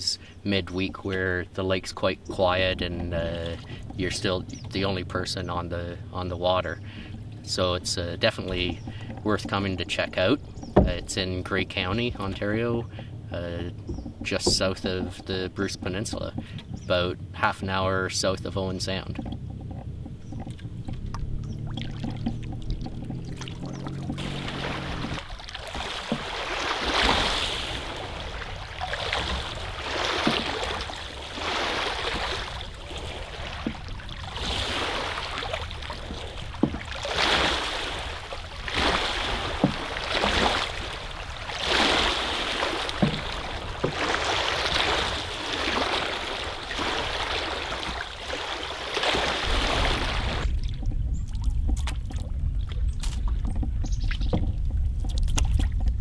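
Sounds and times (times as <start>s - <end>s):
paddle strokes swishing water: 0.0s - 56.0s
low rumble: 0.6s - 26.4s, 49.5s - 56.0s.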